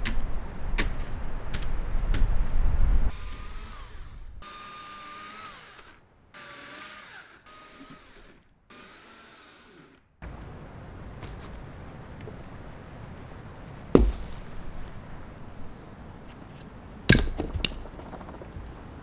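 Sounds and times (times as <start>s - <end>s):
wind hissing: 10.2s - 19.0s.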